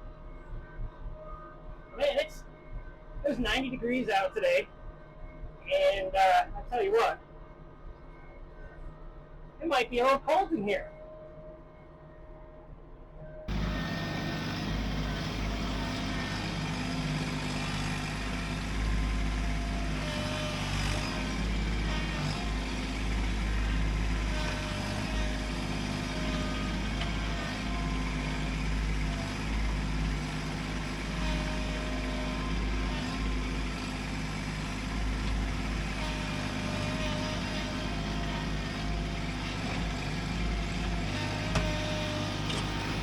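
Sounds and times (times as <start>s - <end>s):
tractor diesel engine running: 13.5s - 43.0s.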